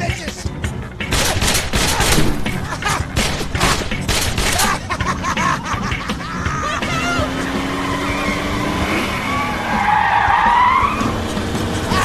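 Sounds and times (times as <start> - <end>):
film soundtrack: 0.0 - 12.0
rapid gunfire: 1.1 - 2.6, 3.2 - 4.8.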